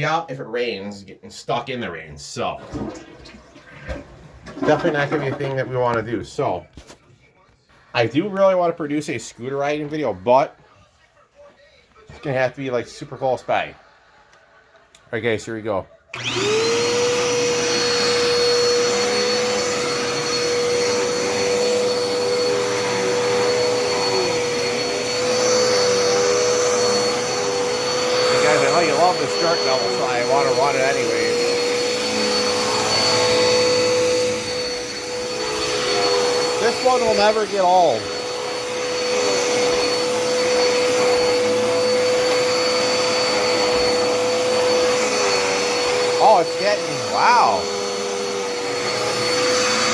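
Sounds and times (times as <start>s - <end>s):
vacuum cleaner motor whine: 16.1s - 49.9s.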